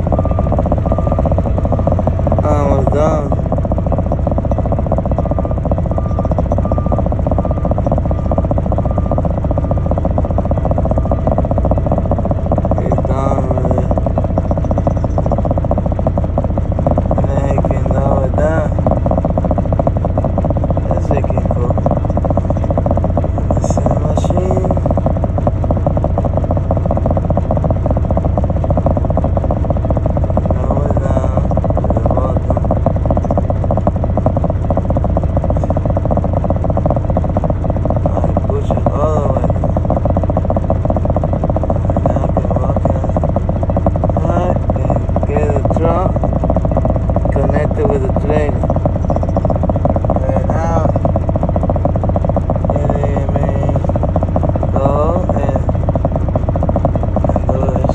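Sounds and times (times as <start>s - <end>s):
backup alarm beeping: 0.0s - 37.2s
heavy diesel engine running: 0.0s - 57.9s.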